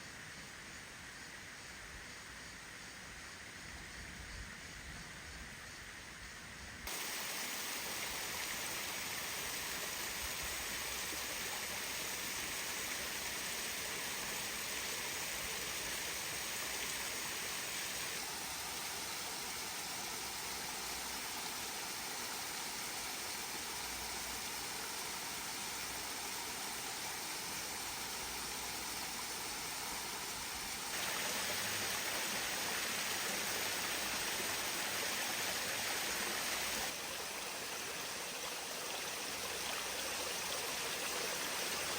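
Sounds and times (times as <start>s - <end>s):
waterfall rushing: 6.9s - 11.9s, 30.9s - 38.4s.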